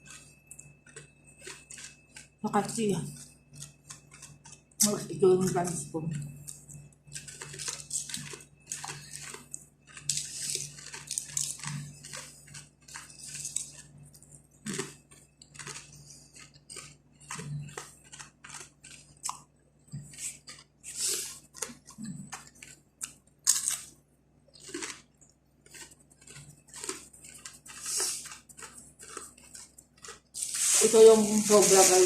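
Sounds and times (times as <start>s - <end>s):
chewing crunchy bread: 0.0s - 32.0s.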